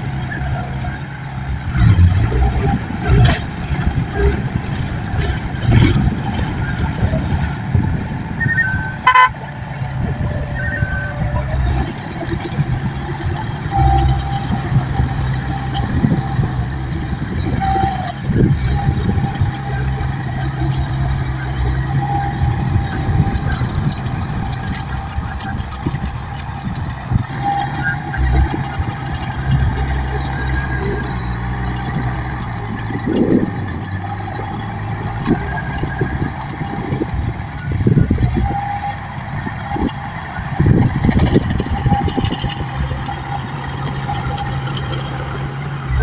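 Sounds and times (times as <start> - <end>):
diesel engine running: 0.0 - 46.0
short beeps: 8.4 - 9.5.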